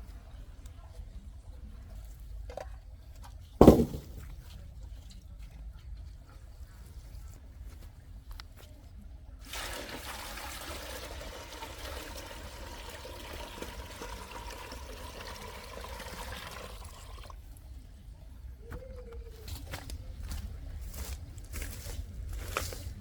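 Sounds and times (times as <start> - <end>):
liquid pouring and splashing: 9.4 - 17.3.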